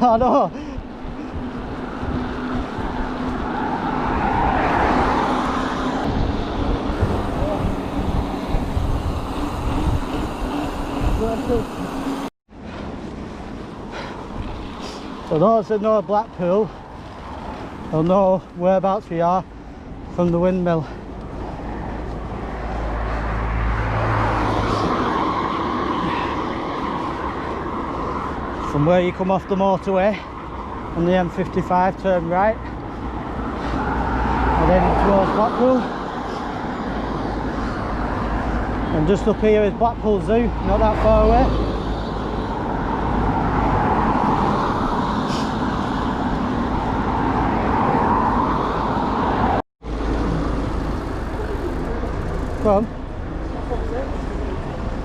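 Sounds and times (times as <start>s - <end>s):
passing motor vehicle: 0.0s - 18.4s, 19.4s - 55.0s
low road rumble: 0.0s - 55.0s
wind on microphone: 0.5s - 12.3s.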